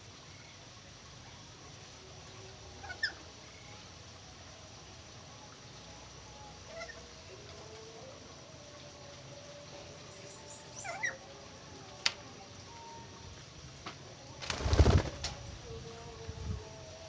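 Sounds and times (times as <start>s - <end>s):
caged birds calling: 10.0s - 11.3s.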